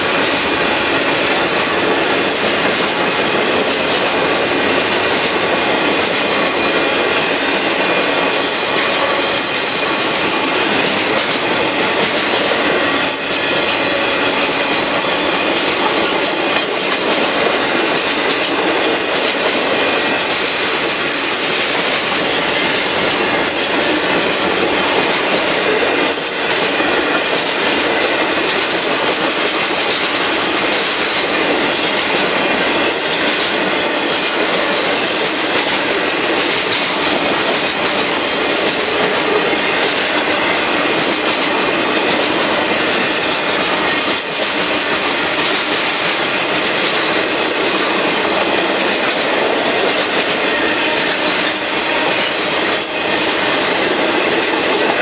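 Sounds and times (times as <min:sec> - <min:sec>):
steel wheels rolling on rails: 0:00.0 - 0:55.0.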